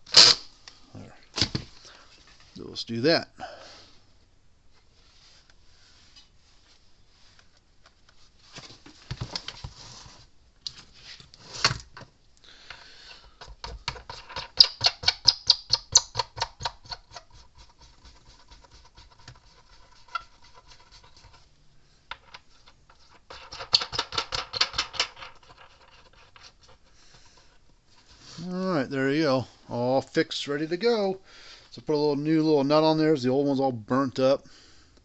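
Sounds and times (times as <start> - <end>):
parts knocking together: 12.7 - 17.3, 22.1 - 26.8
hand ratchet clicking: 14.0 - 17.1.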